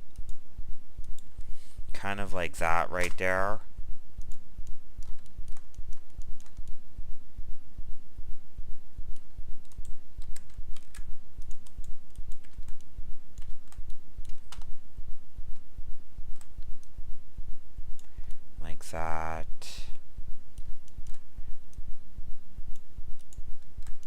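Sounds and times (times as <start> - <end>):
computer mouse and keyboard clicks: 4.2 - 6.8, 9.1 - 14.7, 20.6 - 21.2, 22.7 - 24.0.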